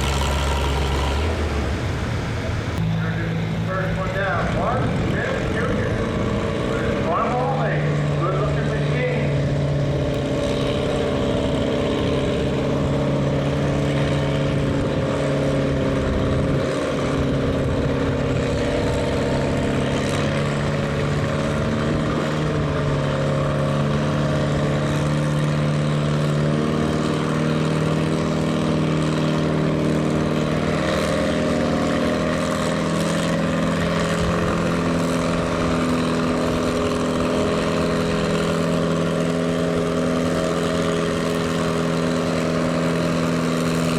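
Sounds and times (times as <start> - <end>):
tractor engine at high revs: 0.0 - 43.9.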